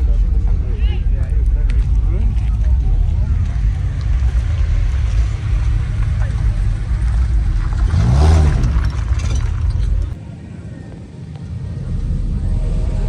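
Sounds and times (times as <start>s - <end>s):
vehicle engine rumble: 0.0s - 13.0s
engine revving: 1.9s - 10.2s.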